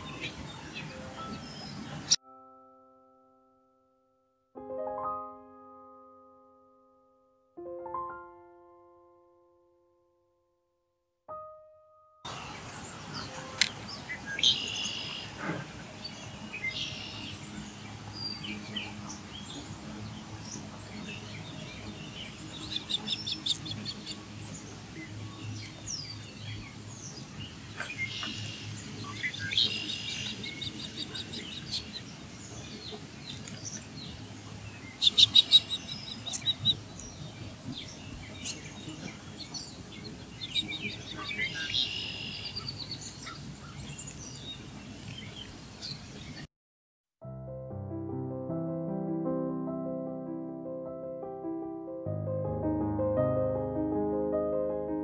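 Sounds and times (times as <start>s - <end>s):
birds chirping and calling: 0.0s - 2.2s, 12.3s - 46.4s.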